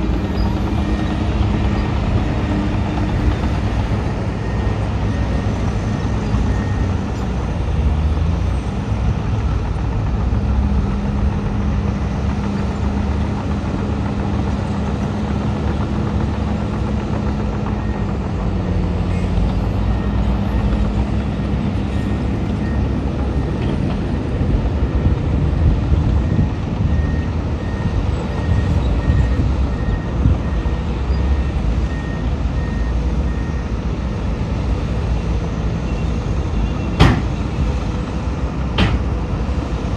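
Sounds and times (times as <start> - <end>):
diesel machinery rumble: 0.0 - 39.9
reversing alarm beeping: 0.2 - 7.2, 26.0 - 34.4.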